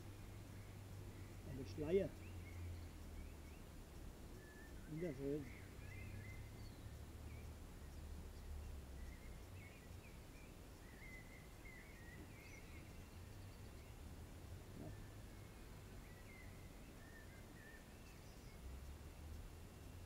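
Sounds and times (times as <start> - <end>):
low wind rumble: 0.0 - 20.0.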